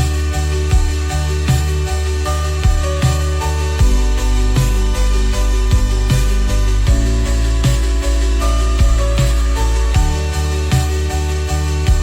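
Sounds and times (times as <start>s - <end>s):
deep bass drone: 0.0s - 12.0s.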